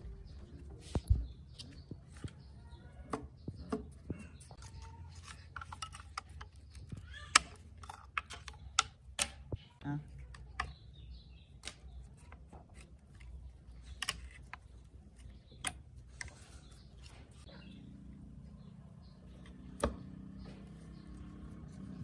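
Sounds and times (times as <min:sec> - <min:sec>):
hard objects clicking and knocking: 0:00.9 - 0:17.5.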